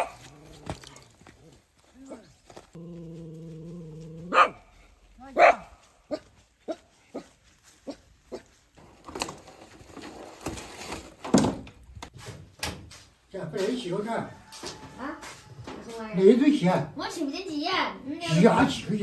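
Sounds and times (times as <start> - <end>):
dog barking: 0.0 - 0.3, 4.3 - 4.7, 5.3 - 7.2.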